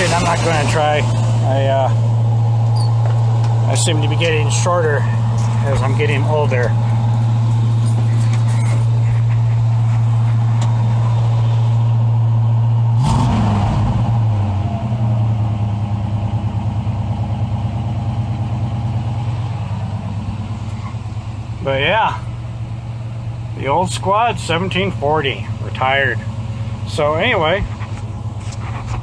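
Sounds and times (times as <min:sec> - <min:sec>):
engine idling: 0:00.0 - 0:29.0.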